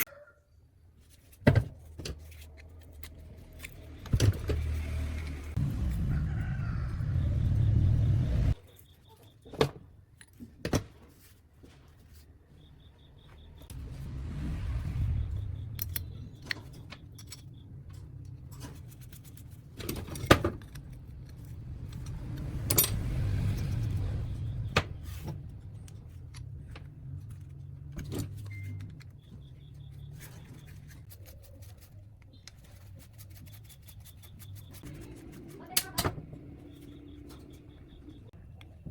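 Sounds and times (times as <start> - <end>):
low steady hum: 13.3 - 31.0
hard parts clinking and knocking: 15.8 - 31.0.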